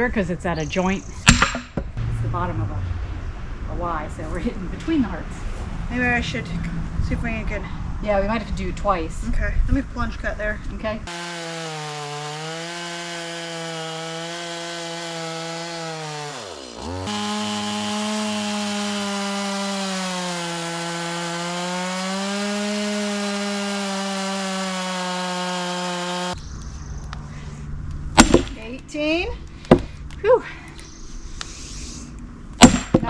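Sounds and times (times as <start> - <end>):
chainsaw cutting wood: 11.1 - 26.4, 28.2 - 28.6.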